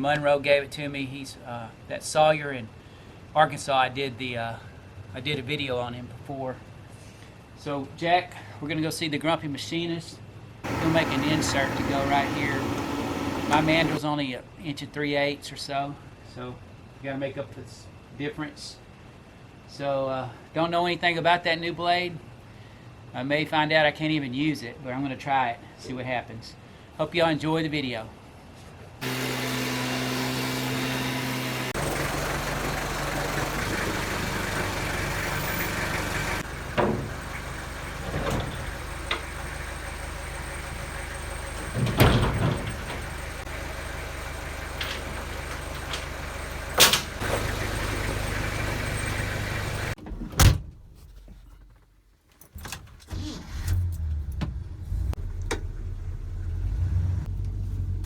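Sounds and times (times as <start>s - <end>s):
road noise: 10.4s - 14.0s, 28.2s - 50.0s, 53.2s - 58.0s
vehicle engine hum: 10.4s - 14.0s, 29.0s - 50.0s, 53.5s - 58.0s
sharp knocks and clunks: 36.7s - 39.3s, 41.6s - 43.2s.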